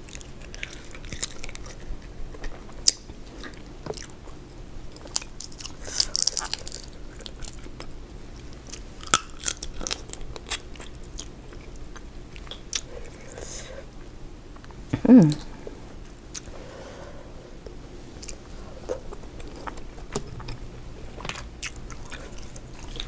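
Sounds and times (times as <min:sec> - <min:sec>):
crackly crunching: 0:00.0 - 0:13.4, 0:17.6 - 0:23.0
person chewing and biting: 0:00.1 - 0:04.3, 0:04.9 - 0:13.4, 0:17.6 - 0:23.0.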